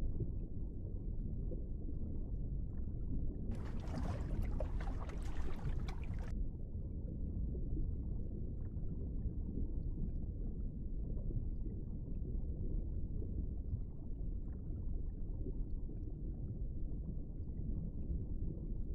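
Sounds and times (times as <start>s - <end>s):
underwater low rumble: 0.0s - 18.9s.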